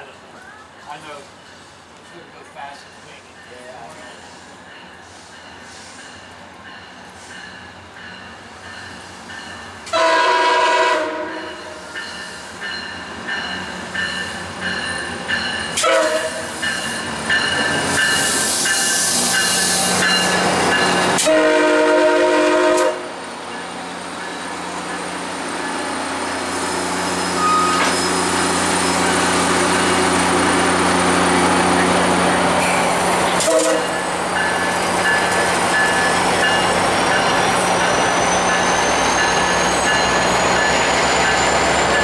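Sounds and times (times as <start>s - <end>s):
train horn blasts: 9.9s - 11.8s, 15.8s - 16.6s, 21.2s - 23.2s, 33.4s - 34.0s
train wheels clattering on rails: 11.4s - 21.7s, 31.7s - 42.0s.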